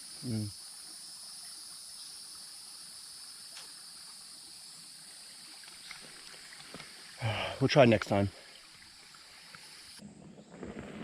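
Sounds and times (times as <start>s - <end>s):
creek water trickling: 0.0s - 10.0s
high-pitched insect drone: 0.0s - 10.0s
faint small ticks: 3.4s - 4.2s, 5.5s - 7.0s, 8.0s - 10.0s.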